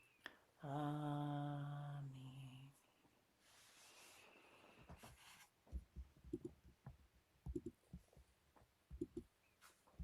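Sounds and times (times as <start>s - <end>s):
soft rustle: 3.4s - 5.9s, 9.4s - 10.0s.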